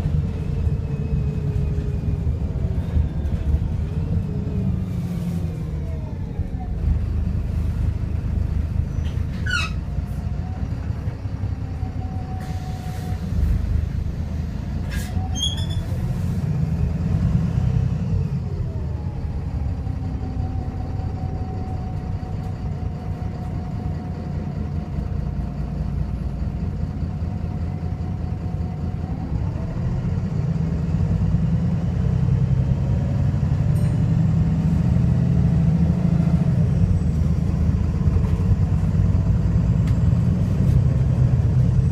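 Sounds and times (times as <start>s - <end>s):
bus diesel engine rumbling: 0.0s - 41.9s
short high squeaks: 8.9s - 9.9s, 14.9s - 16.0s.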